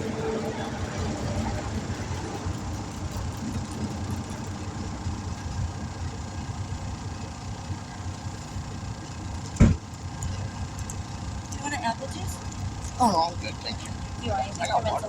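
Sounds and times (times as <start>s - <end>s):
motor chugging: 0.0s - 15.0s
loud thump: 9.6s - 9.8s.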